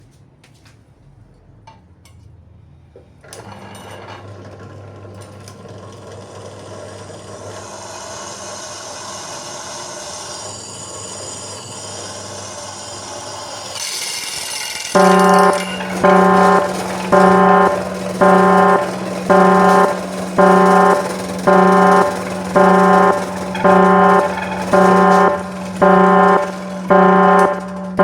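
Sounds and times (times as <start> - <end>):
power tool humming and rasping: 6.4 - 28.0.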